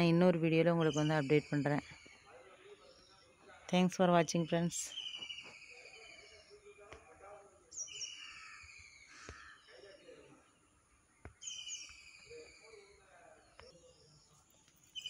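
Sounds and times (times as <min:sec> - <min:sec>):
faint bird calls: 0:07.7 - 0:15.0.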